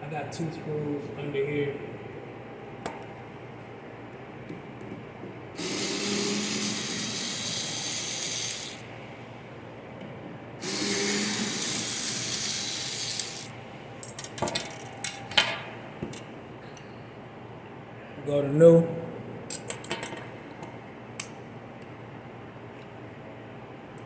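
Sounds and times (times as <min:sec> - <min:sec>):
cordless drill whirring: 0:05.6 - 0:08.8, 0:10.6 - 0:13.5.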